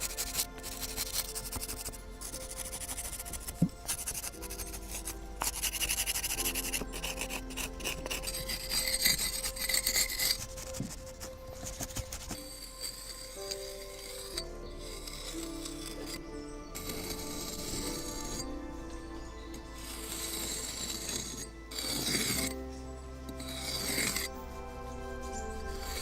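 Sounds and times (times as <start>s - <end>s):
rough scraping on hard surface: 0.0s - 26.0s
soft background music: 0.0s - 26.0s.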